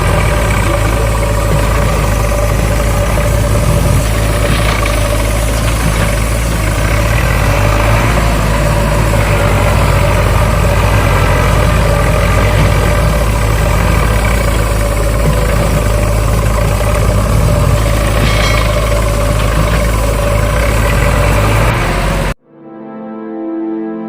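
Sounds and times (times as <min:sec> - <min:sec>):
engine idling: 0:00.0 - 0:22.4.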